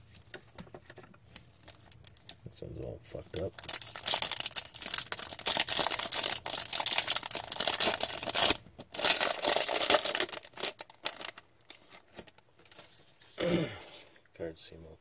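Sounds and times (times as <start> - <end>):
wrapper crinkling and tearing: 1.3 - 2.4, 3.2 - 13.0.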